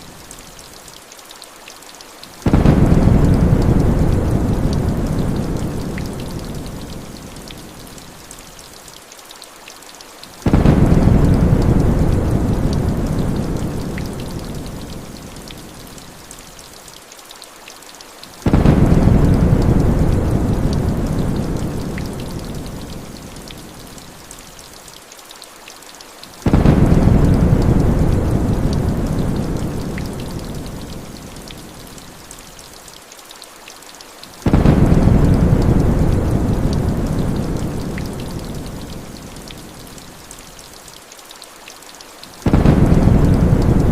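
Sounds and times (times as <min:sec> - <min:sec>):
heavy rain hissing: 0:02.2 - 0:08.5, 0:10.3 - 0:16.8, 0:18.2 - 0:24.8, 0:26.2 - 0:32.5, 0:34.2 - 0:41.0, 0:42.0 - 0:43.9
thunder rumbles: 0:02.4 - 0:06.9, 0:10.4 - 0:14.9, 0:18.5 - 0:22.9, 0:26.5 - 0:30.9, 0:34.4 - 0:39.1, 0:42.4 - 0:43.9.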